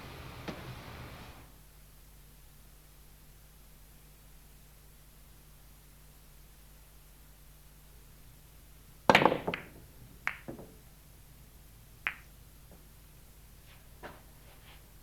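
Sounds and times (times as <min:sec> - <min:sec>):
tape hiss and hum: 0:00.0 - 0:09.1.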